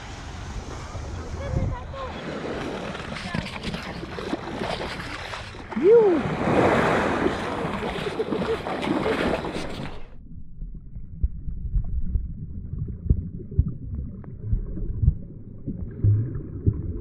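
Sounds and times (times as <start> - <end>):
water splashing: 0.0 - 10.2
wind: 0.0 - 10.9
muffled underwater rumble: 9.3 - 17.0
soft knocks and ticks underwater: 10.6 - 17.0.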